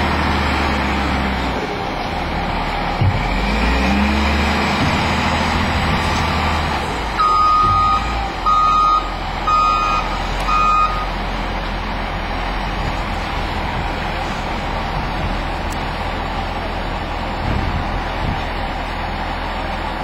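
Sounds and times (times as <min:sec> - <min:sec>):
engine rumble: 0:00.0 - 0:20.0
vehicle reversing alarm beeping: 0:07.2 - 0:11.2.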